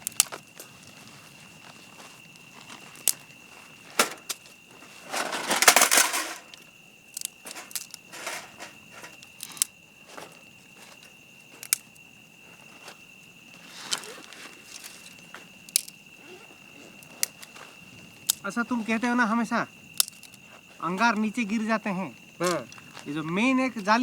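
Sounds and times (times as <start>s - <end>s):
rustling crunch: 0.0s - 6.6s, 7.4s - 11.7s
clicks and knocks of gear: 7.2s - 9.7s, 13.9s - 16.0s, 20.0s - 20.4s.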